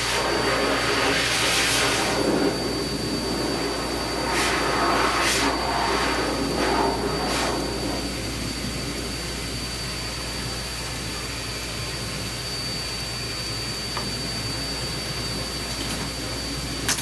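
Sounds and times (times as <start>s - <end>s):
motor-driven blower rushing: 0.0s - 11.6s
faint high whine: 0.0s - 17.0s.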